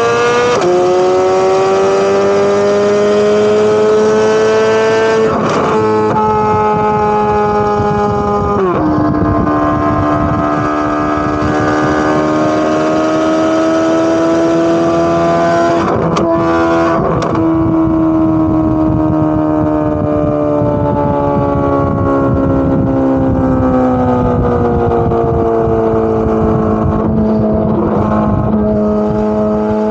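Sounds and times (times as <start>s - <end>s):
sports car engine at high revs: 0.0s - 29.9s
exhaust cracks: 15.8s - 18.0s.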